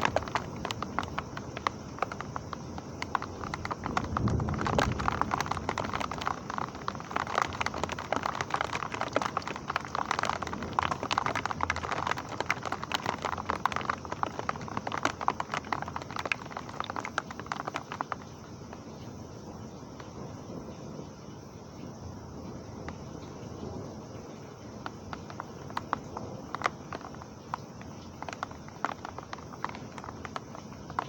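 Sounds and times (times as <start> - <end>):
heavy rain on hard surface: 0.0 - 31.0.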